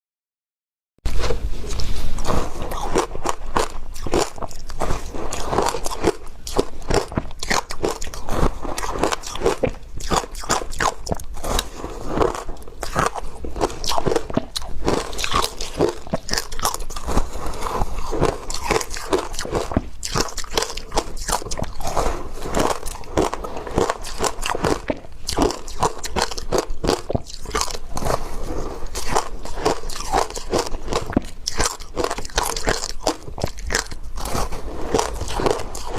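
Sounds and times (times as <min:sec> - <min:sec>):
chewing crunchy ice: 0:01.7 - 0:35.9.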